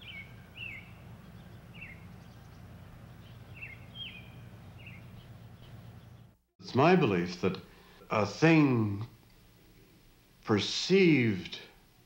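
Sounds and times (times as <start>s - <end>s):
birds chirping: 0.0s - 6.4s
steady low hum: 0.0s - 10.6s.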